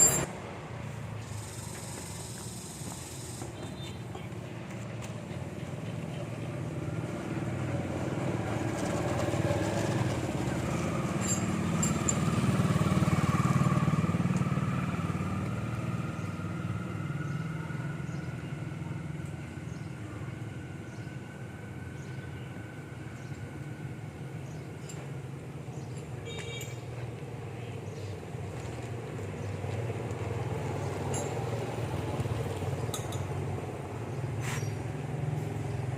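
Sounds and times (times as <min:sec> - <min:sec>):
vehicle engine passing by: 0:05.0 - 0:25.2, 0:28.4 - 0:35.9.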